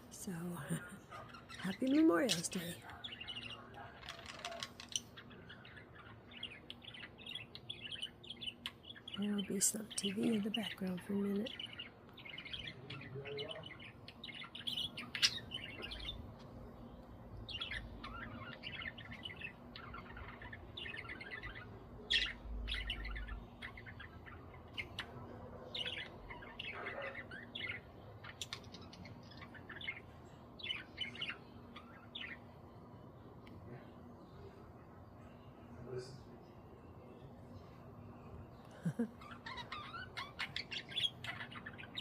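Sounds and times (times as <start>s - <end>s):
faint low hum: 0.0s - 42.0s
budgerigars chirping: 1.2s - 16.4s, 17.4s - 25.2s, 25.8s - 32.4s, 39.2s - 42.0s.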